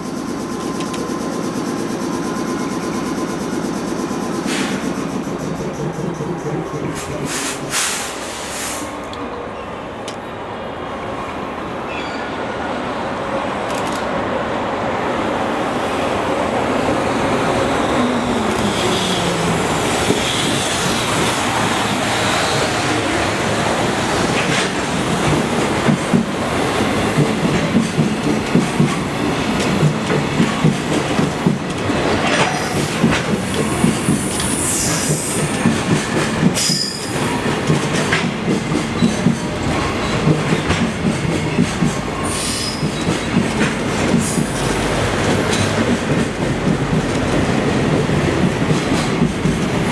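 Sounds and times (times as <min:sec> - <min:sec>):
high wheel squeal: 0:11.9 - 0:12.4, 0:36.6 - 0:37.7
train wheels clacking over rail joints: 0:24.1 - 0:49.9.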